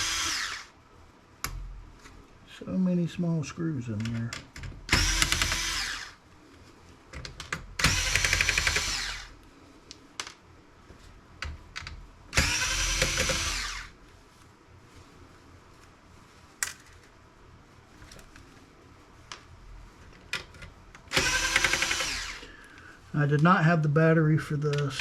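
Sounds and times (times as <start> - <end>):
power screwdriver running: 0.0 - 0.7, 4.9 - 6.2, 7.8 - 9.3, 12.4 - 13.9, 21.1 - 22.5.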